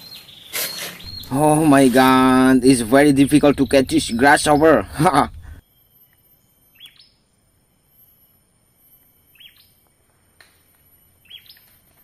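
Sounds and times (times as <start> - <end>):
faint bird chirps: 0.0 - 11.8
high-pitched hum: 1.0 - 5.6.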